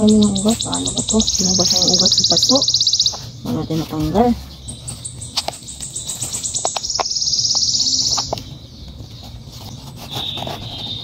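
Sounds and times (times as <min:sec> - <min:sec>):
bird trilling: 0:00.0 - 0:09.3
plant pot knocking and rustling: 0:03.1 - 0:11.0.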